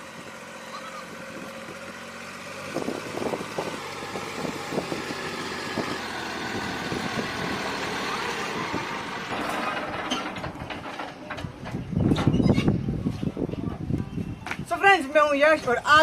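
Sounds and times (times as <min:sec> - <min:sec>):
tractor diesel engine running: 0:00.0 - 0:14.4
clattering knocks: 0:09.0 - 0:12.4.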